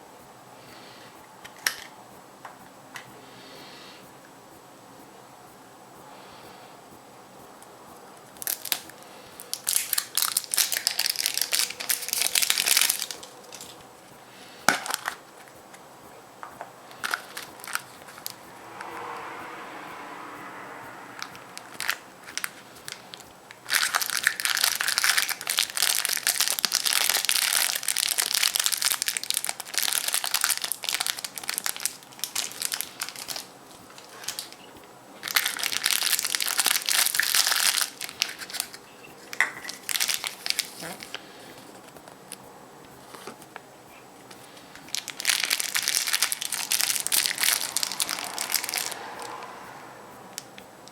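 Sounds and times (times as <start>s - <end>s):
foil wrapper crinkling: 8.4s - 13.8s, 17.0s - 18.4s, 21.6s - 34.6s, 35.2s - 41.2s, 44.3s - 49.0s.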